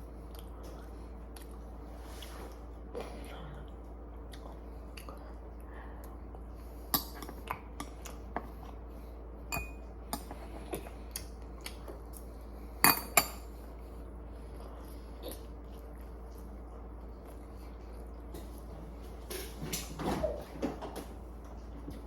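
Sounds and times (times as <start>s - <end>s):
faint steady hum: 0.0s - 22.0s
utensils clinking against dishes: 9.5s - 10.3s.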